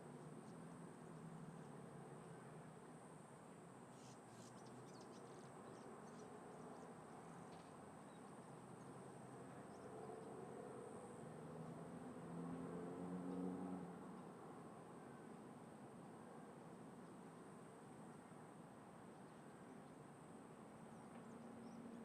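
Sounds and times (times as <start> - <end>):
distant traffic: 9.4 - 18.2.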